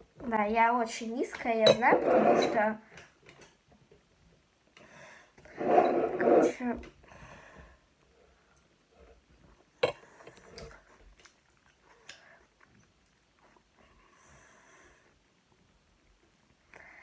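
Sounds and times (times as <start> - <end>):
person chewing food: 9.8 - 13.8.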